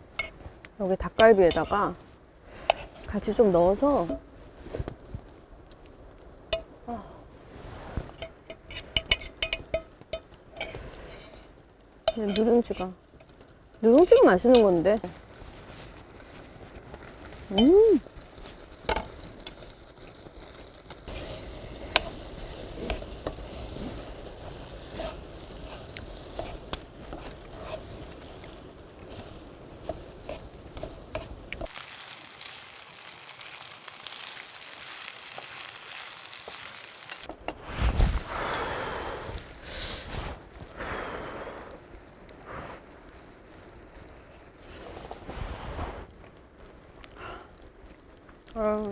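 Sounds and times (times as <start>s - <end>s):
spatula scraping a pan: 0.0s - 3.1s, 12.1s - 13.0s, 18.5s - 31.7s
food sizzling in a pan: 0.0s - 5.3s, 6.5s - 45.8s.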